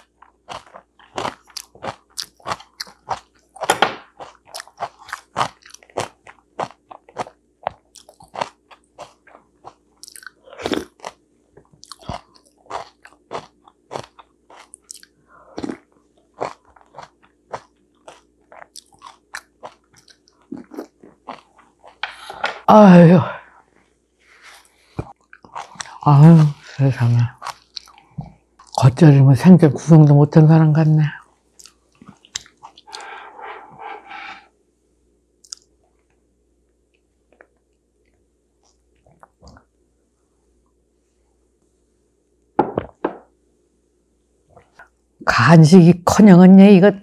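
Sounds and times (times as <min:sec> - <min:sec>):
person chewing and crunching food: 0:00.0 - 0:22.7, 0:23.4 - 0:28.8, 0:31.3 - 0:34.5, 0:35.4 - 0:39.8.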